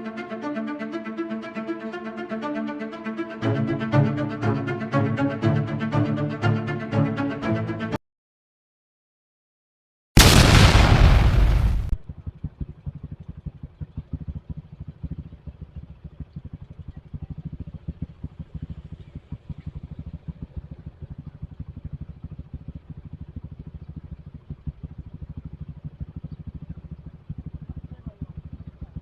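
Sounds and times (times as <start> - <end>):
motorcycle engine running: 12.0 - 29.0.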